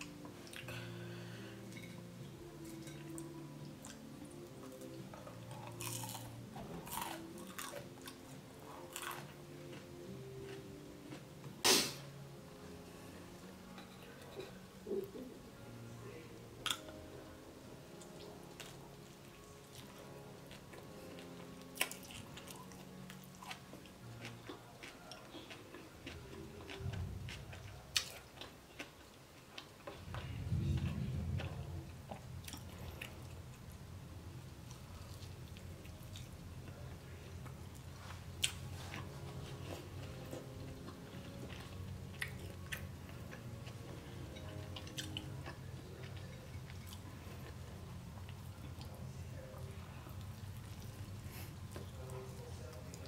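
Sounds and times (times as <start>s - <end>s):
chewing and biting burger: 5.4s - 8.2s, 19.7s - 31.4s.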